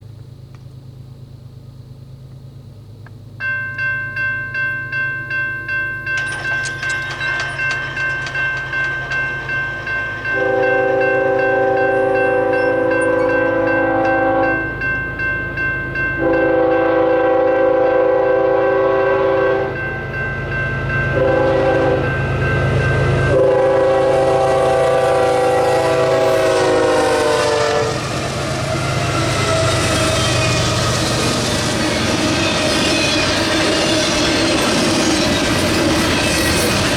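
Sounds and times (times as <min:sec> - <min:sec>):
diesel locomotive rumble: 0:00.0 - 0:36.9
crossing bell ringing: 0:03.4 - 0:28.2, 0:29.2 - 0:36.9
train cars rolling: 0:03.4 - 0:36.9
train horn blasts: 0:10.2 - 0:14.8, 0:16.2 - 0:19.9, 0:21.1 - 0:22.2, 0:23.1 - 0:28.2.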